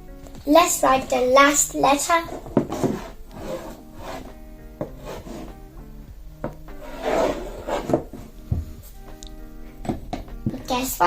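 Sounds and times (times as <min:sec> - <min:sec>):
quiet background music: 0:00.0 - 0:11.0
pen scratching on paper: 0:02.6 - 0:05.6, 0:06.8 - 0:08.2.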